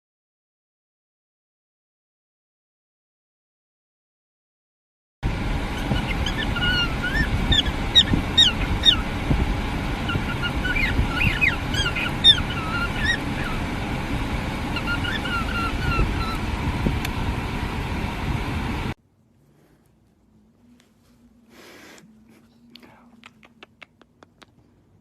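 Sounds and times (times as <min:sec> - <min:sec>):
steady low rumble: 0:05.2 - 0:19.0
parrot chirps and whistles: 0:05.8 - 0:09.1, 0:10.1 - 0:13.7, 0:14.7 - 0:16.5.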